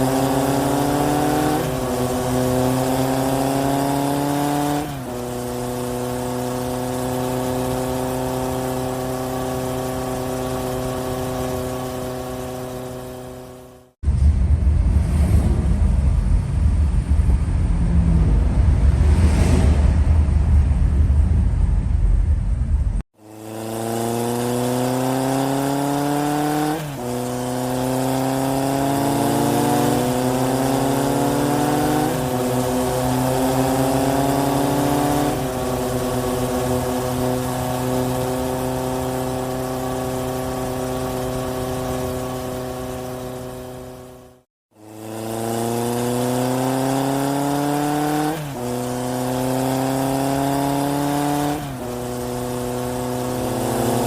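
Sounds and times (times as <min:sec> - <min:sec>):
vehicle engine accelerating: 0:00.0 - 0:54.0
wind rumble on microphone: 0:14.0 - 0:23.0.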